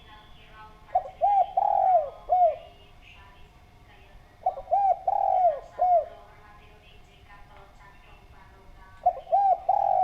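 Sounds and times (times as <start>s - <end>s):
dove cooing: 0.9s - 2.8s, 4.4s - 6.4s, 9.0s - 10.0s.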